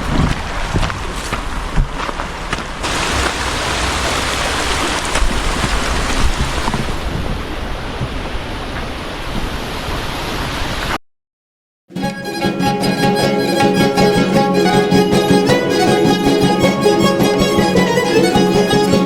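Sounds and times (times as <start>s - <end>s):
rushing flowing water: 0.0s - 11.0s.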